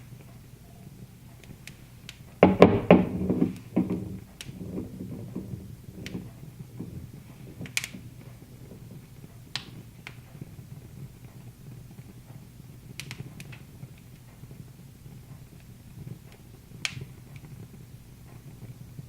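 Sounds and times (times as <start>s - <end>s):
wood fire crackling: 0.0s - 19.0s
knocks and rattles: 2.4s - 9.0s.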